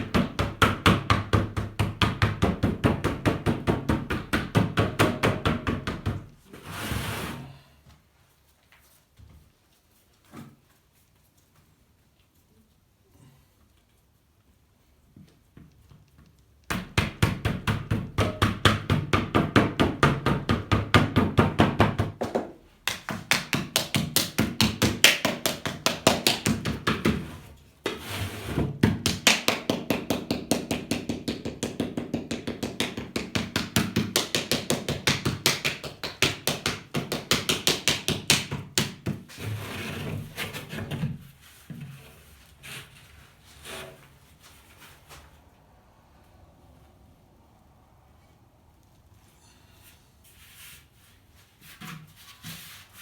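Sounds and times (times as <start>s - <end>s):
paddle slapping clay: 22.8s - 27.3s, 28.8s - 39.3s.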